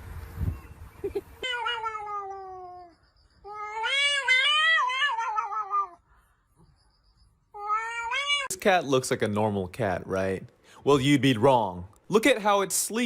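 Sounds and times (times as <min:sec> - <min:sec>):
cat meowing: 0:01.4 - 0:02.9, 0:03.5 - 0:06.0, 0:07.5 - 0:08.5.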